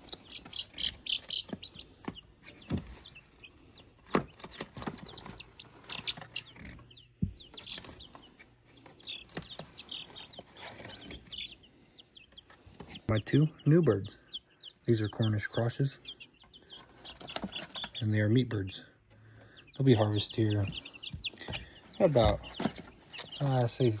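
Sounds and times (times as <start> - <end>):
chicks peeping: 0.0 - 24.0
knocks and thumps: 4.0 - 8.1, 20.6 - 23.4.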